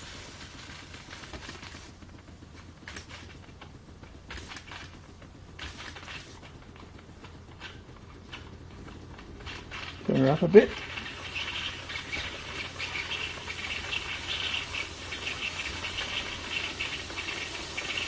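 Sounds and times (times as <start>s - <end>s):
steam spitting and hissing: 0.0s - 2.1s, 5.5s - 6.6s, 9.2s - 18.0s
steam cleaner humming: 0.0s - 18.0s.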